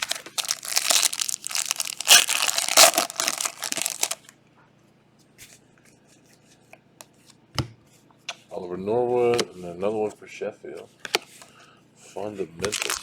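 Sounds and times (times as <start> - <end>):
foil wrapper tearing and crinkling: 0.0 - 4.3, 12.7 - 13.0.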